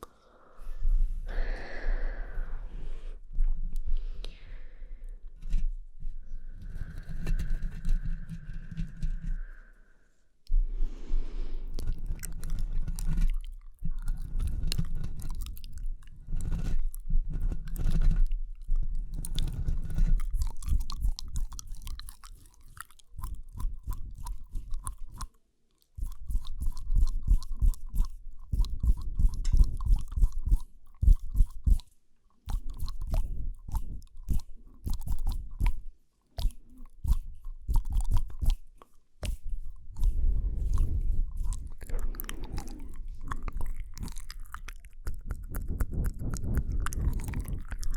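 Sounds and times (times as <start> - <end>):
mouth clicks and smacks: 17.4 - 47.9.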